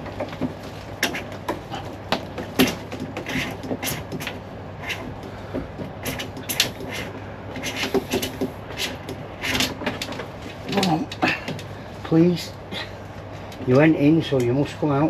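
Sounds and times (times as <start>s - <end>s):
tools clicking and knocking: 0.0s - 11.7s
steady low hum: 0.0s - 15.0s.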